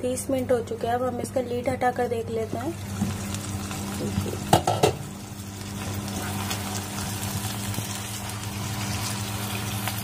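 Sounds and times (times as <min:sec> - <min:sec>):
chicken sizzling in oil: 0:02.6 - 0:10.0.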